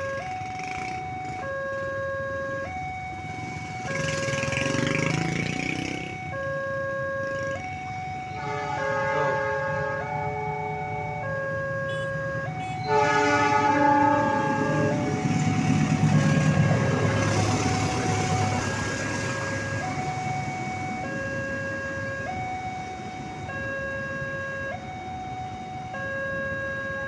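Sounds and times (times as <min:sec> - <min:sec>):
two-tone crossing warning signal: 0:00.0 - 0:27.0
train horn: 0:08.3 - 0:11.2, 0:11.9 - 0:16.6
train rumbling past: 0:12.8 - 0:20.9.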